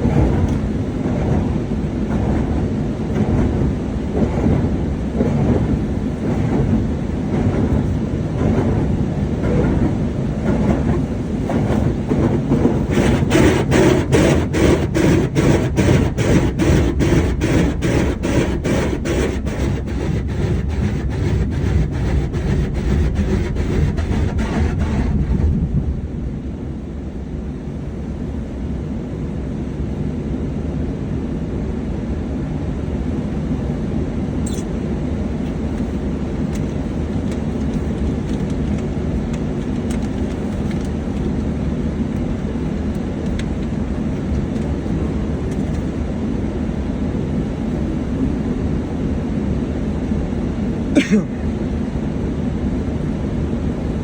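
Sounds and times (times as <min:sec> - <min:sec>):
car wash rhythmic slapping: 0:00.0 - 0:26.0, 0:35.4 - 0:46.0
steady low rumble: 0:00.0 - 0:54.0.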